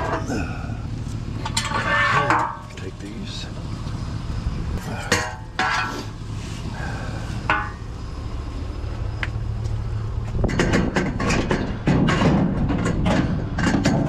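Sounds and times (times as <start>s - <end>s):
scrap metal clinking and rattling: 0.0s - 3.2s, 4.8s - 6.3s, 7.4s - 8.0s
low engine hum: 0.0s - 14.0s.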